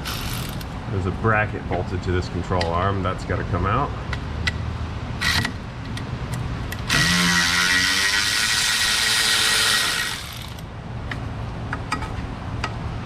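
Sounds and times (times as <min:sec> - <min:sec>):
power tool spinning: 0:06.8 - 0:10.6.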